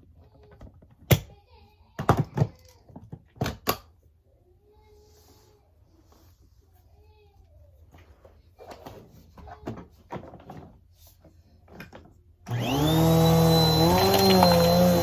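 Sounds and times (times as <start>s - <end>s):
vacuum cleaner motor whine: 12.5s - 15.0s.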